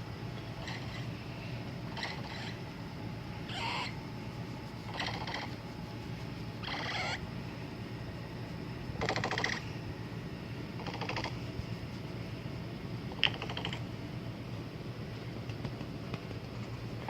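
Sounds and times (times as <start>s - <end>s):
steady low hum: 0.0s - 17.0s
capybara pulsed calls: 0.6s - 1.1s, 1.9s - 2.6s, 3.4s - 4.0s, 4.8s - 5.6s, 6.6s - 7.2s, 9.0s - 9.7s, 10.8s - 11.4s, 13.2s - 13.9s.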